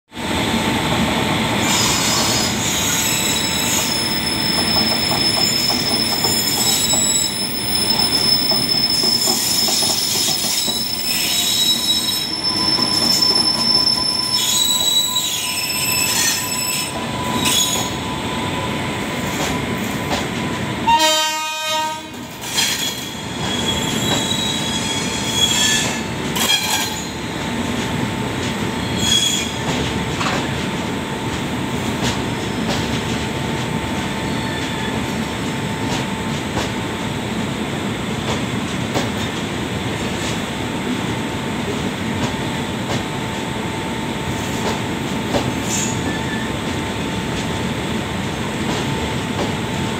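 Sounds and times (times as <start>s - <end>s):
train wheels rumbling and clattering: 0.2s - 49.9s
high-pitched wheel squeals: 1.6s - 18.3s, 22.6s - 27.3s, 28.8s - 29.6s
train horn blast: 20.8s - 22.3s.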